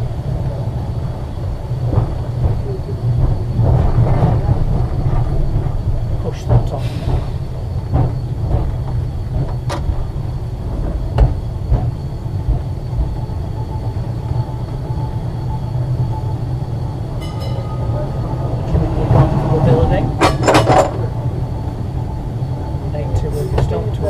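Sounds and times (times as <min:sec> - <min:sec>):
tram wheels rumbling on track: 0:00.0 - 0:24.0
sharp knocks and clicks: 0:07.9 - 0:10.0, 0:10.8 - 0:12.7.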